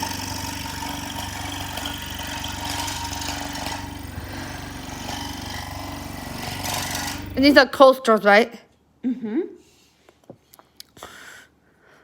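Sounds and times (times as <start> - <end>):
scroll saw buzzing: 0.0 - 7.8.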